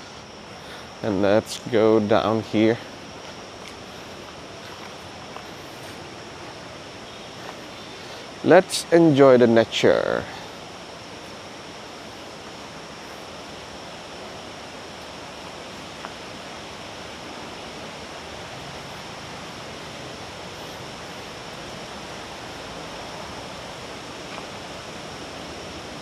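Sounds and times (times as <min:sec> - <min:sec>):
high-pitched insect drone: 0:00.0 - 0:26.0
river rushing: 0:01.9 - 0:26.0.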